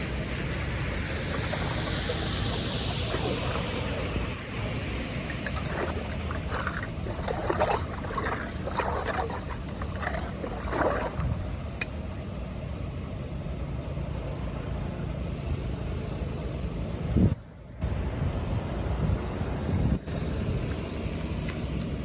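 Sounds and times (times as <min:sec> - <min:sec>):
water splashing and gurgling: 0:00.0 - 0:11.9
flowing water: 0:00.0 - 0:12.0.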